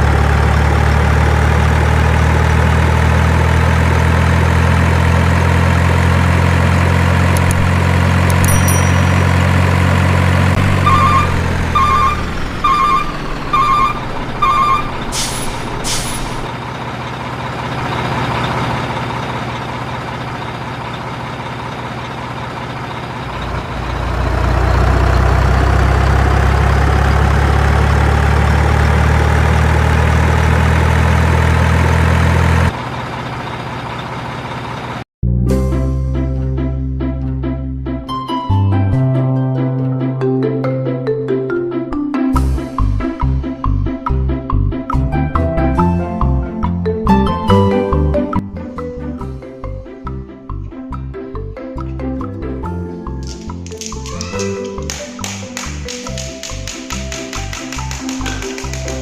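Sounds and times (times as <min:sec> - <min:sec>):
truck diesel engine running: 0:00.0 - 0:38.0, 0:42.3 - 0:59.0
reversing alarm beeping: 0:10.7 - 0:15.4
air brakes hissing: 0:15.0 - 0:16.5.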